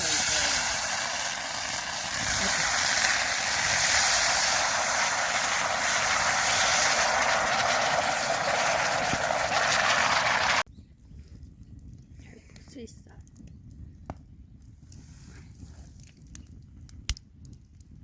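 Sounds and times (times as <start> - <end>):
wood fire hissing: 0.0 - 10.7
fire crackles: 0.0 - 18.0.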